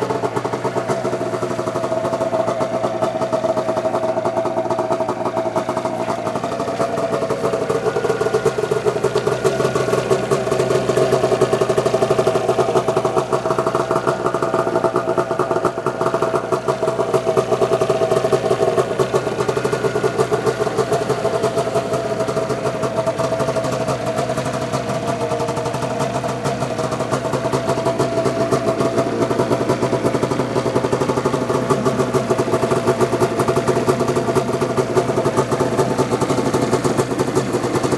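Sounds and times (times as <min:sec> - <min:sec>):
snowmobile engine idling: 0:00.0 - 0:37.9.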